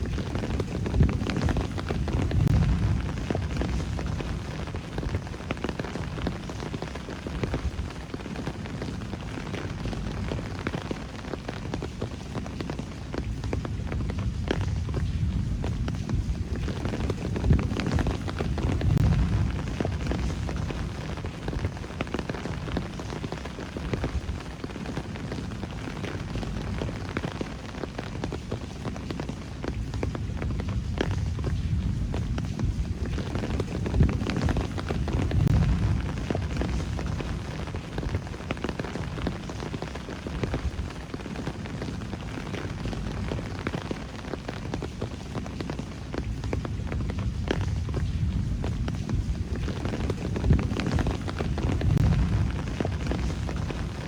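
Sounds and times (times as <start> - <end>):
low rumble: 0.0 - 5.3, 13.6 - 22.9, 30.1 - 39.2, 46.7 - 54.0
drops and drips ticking: 0.0 - 54.0
steady rainfall hiss: 0.0 - 54.0.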